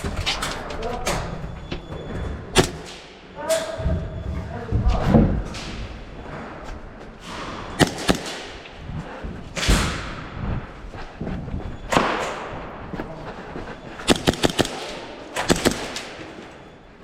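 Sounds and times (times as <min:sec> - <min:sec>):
airsoft gun shots: 0:02.6 - 0:03.0, 0:07.8 - 0:08.6, 0:14.1 - 0:16.2.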